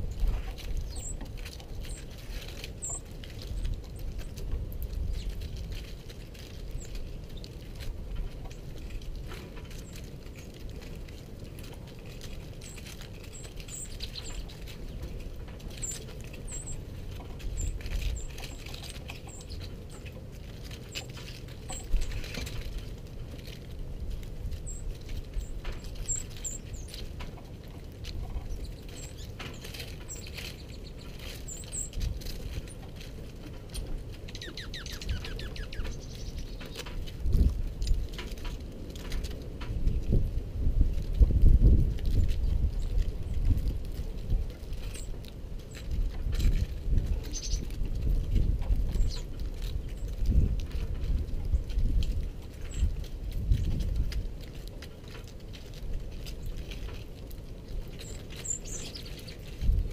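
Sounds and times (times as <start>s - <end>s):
high-pitched bird chips: 0.0s - 4.4s, 12.6s - 14.8s, 15.7s - 16.8s, 17.4s - 20.0s, 24.6s - 27.2s, 28.3s - 32.8s, 33.7s - 36.9s, 47.2s - 47.7s, 48.9s - 50.1s, 58.0s - 59.5s.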